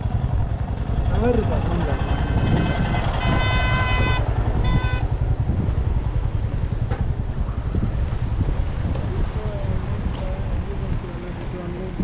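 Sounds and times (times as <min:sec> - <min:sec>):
motorcycle engine rumbling: 0:00.0 - 0:12.0
vehicle horn tooting: 0:02.3 - 0:05.1.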